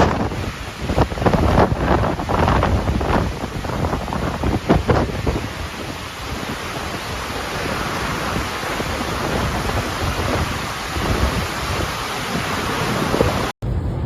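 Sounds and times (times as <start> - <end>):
gusts rumbling on microphone: 0.0 - 14.0
heavy rain: 0.0 - 14.0
hurricane wind: 0.0 - 14.0.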